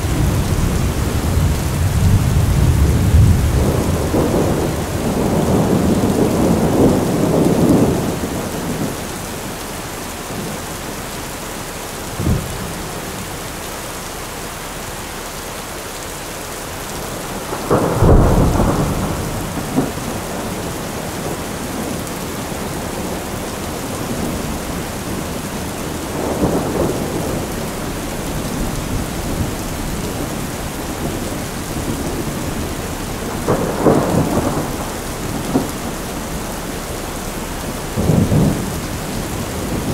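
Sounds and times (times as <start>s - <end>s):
thunder rumbling: 0.0s - 13.5s, 16.6s - 39.9s
steady rain: 0.0s - 39.9s
thunder crack: 17.2s - 21.9s, 24.0s - 39.9s.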